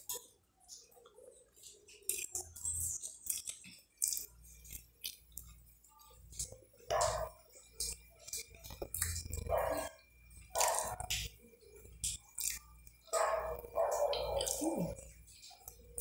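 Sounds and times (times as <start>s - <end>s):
chewing and lip smacking: 0.0s - 16.0s
wet mouth clicks and smacks: 10.6s - 13.1s, 14.1s - 16.0s.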